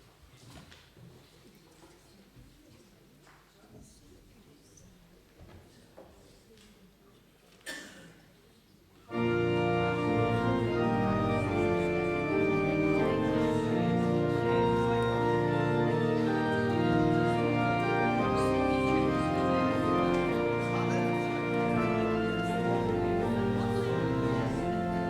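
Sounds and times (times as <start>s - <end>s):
church organ playing chords: 9.1s - 25.0s.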